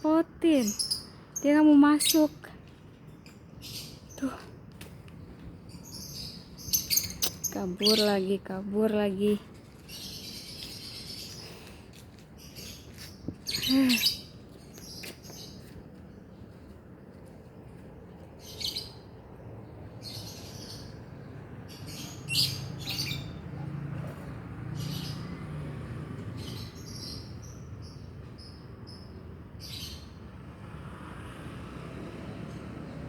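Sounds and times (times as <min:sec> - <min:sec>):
lovebirds chirping shrilly: 0:00.5 - 0:02.4, 0:05.8 - 0:08.4, 0:12.4 - 0:15.7, 0:21.8 - 0:23.4.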